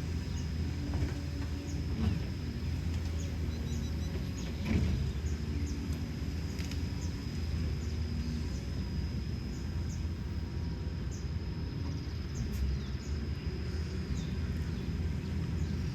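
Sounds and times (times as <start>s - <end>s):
diesel engine rumbling: 0.0s - 15.9s
birds chirping: 3.0s - 6.1s, 12.0s - 15.9s.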